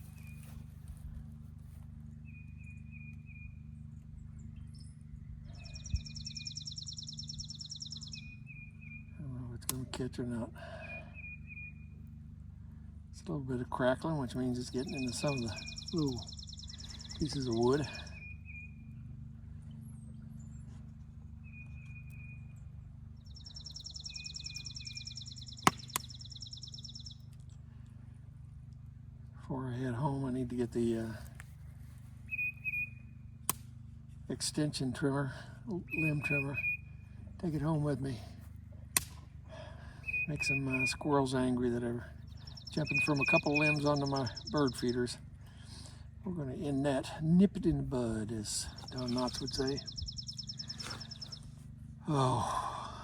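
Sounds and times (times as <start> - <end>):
low hum: 0.0 - 53.0
steady low rumble: 0.0 - 53.0
rapid high bird trill: 5.5 - 9.2, 14.6 - 19.2, 21.3 - 27.3, 32.2 - 33.4, 35.9 - 37.8, 39.8 - 45.3, 48.6 - 51.6
short high bird chirps: 5.6 - 9.1, 14.8 - 17.2, 23.3 - 27.2, 32.3 - 33.1, 35.9 - 37.0, 40.0 - 41.1, 42.3 - 44.6, 48.8 - 51.5.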